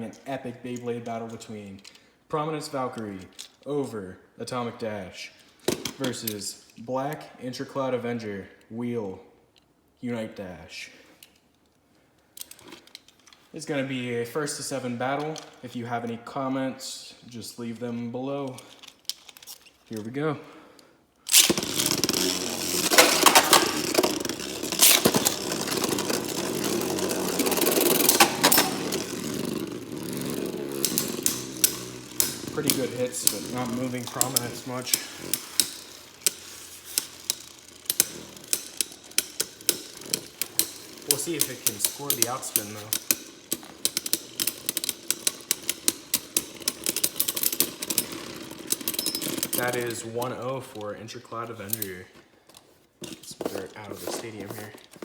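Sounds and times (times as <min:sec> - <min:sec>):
spinning tops whirring in plastic stadium: 0:21.3 - 0:49.8
spinning tops clacking together: 0:21.3 - 0:50.4.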